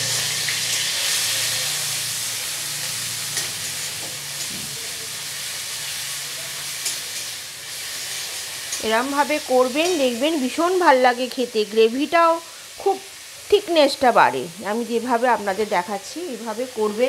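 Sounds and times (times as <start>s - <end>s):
onion paste sizzling in hot oil: 0.0s - 17.0s.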